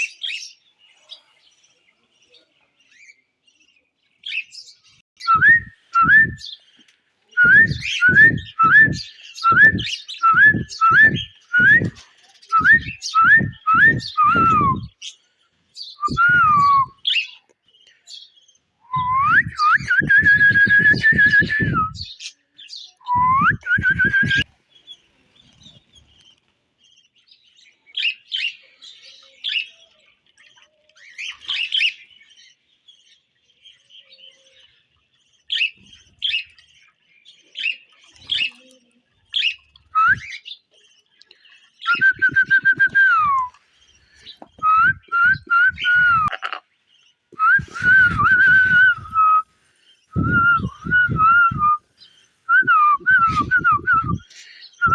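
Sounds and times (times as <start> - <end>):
parrot whistling: 7.4 - 12.0, 44.6 - 46.3, 47.4 - 49.4, 50.2 - 51.8.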